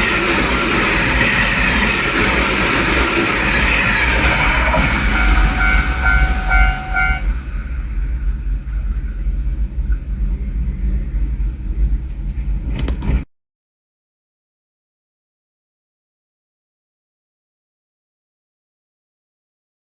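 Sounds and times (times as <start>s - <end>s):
train rumbling past: 0.0s - 13.2s
crossing alarm pulsed tones: 3.2s - 7.4s.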